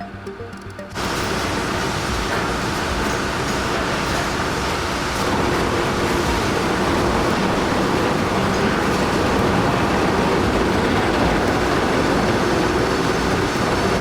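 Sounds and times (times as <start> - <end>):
heavy machinery rumbling: 0.1 - 14.0.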